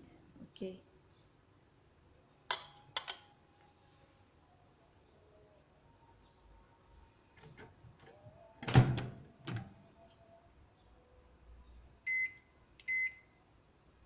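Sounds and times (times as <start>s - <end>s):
microwave door shutting: 8.6s - 9.7s
keypad beeps: 12.1s - 13.3s.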